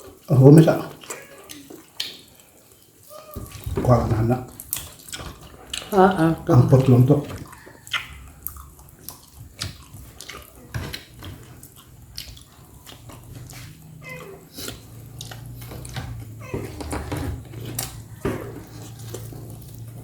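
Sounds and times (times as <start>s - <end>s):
person chewing food: 0.9s - 20.0s
mouth clicks: 7.8s - 8.6s.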